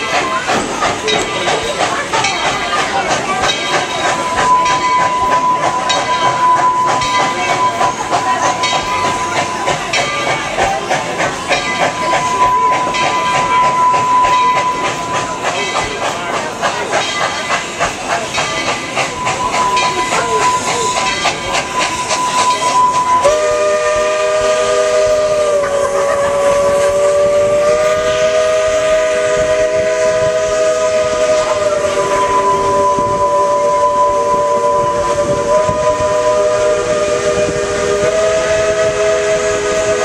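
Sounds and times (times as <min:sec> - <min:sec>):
steam train clatter: 0:00.0 - 0:40.0
steam whistle blast: 0:19.2 - 0:40.0.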